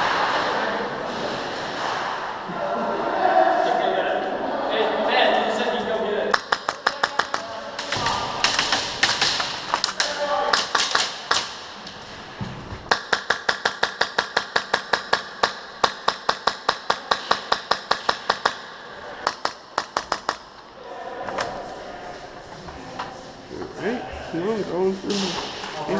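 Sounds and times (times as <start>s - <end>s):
airsoft guns firing: 6.3s - 11.8s, 12.9s - 20.6s.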